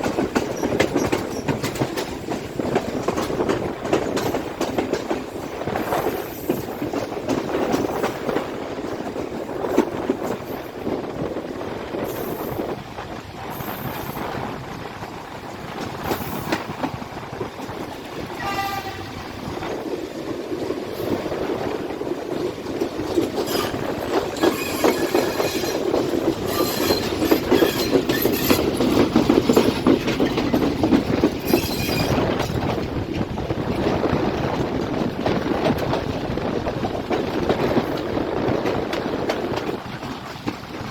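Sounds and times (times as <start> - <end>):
train wheels clattering over joints: 0.0 - 40.9
train horn: 18.4 - 19.4
high-pitched wheel squeal: 23.5 - 23.8, 24.4 - 25.8, 26.5 - 28.7, 31.5 - 32.2.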